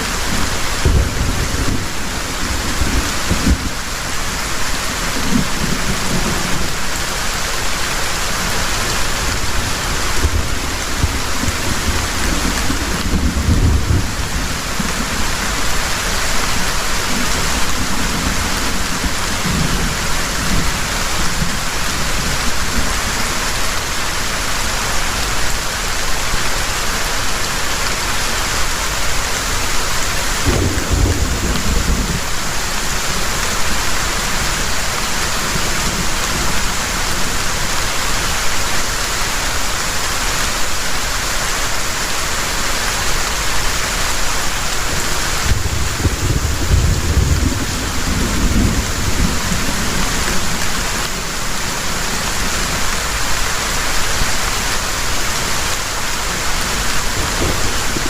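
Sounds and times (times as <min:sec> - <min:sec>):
heavy rain pouring: 0:00.0 - 0:58.0
thunder rumbling: 0:00.1 - 0:07.4, 0:08.3 - 0:23.0, 0:30.4 - 0:37.5, 0:44.8 - 0:53.4, 0:56.8 - 0:58.0.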